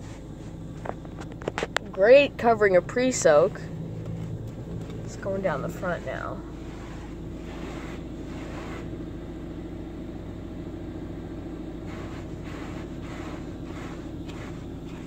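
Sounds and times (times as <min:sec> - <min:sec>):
steady low hum: 0:00.0 - 0:15.0
spray hissing against car body: 0:06.6 - 0:09.0, 0:11.8 - 0:15.0.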